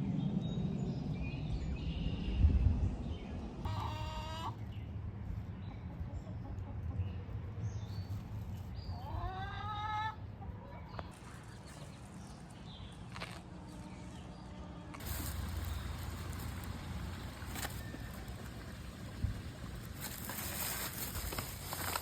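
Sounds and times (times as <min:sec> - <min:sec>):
steady low rumble: 0:00.0 - 0:03.7, 0:13.5 - 0:21.8.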